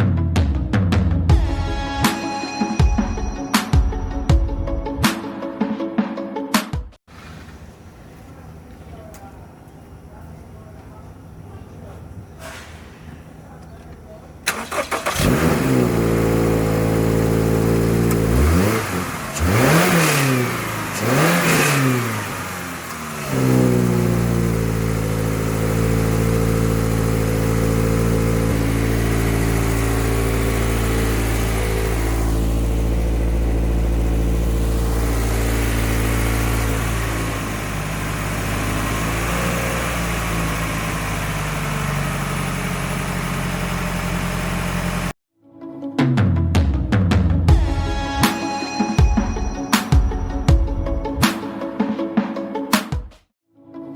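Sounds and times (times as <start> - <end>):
car engine idling and revving: 13.4 - 45.2.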